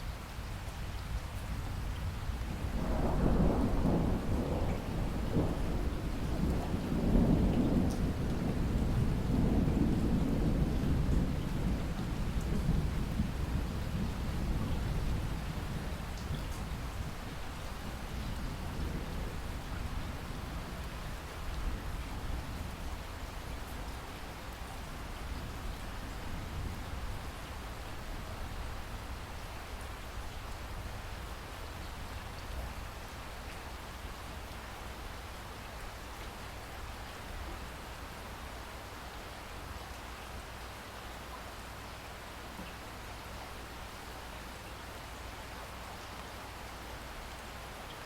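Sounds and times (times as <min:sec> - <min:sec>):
steady rain: 0:00.0 - 0:48.0
low thunder rumble: 0:02.6 - 0:23.0.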